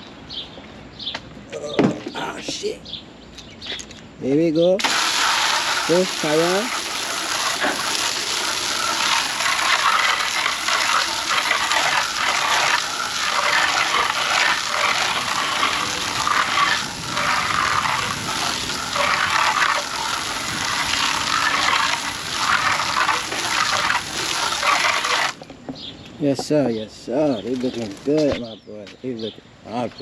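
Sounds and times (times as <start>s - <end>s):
water jet spraying car wheel: 4.8s - 25.4s.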